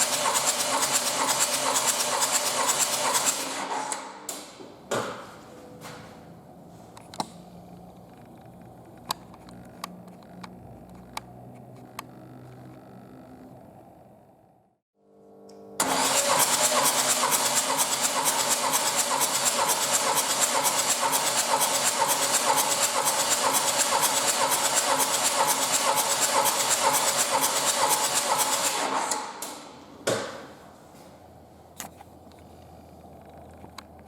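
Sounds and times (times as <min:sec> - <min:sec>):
starter motor cranking engine: 0:00.0 - 0:03.9, 0:15.8 - 0:29.4.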